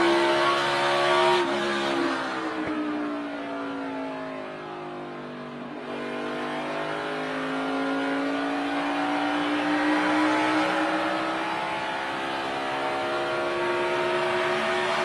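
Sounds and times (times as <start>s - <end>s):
race car engine revving: 0.0s - 2.7s, 5.7s - 15.0s.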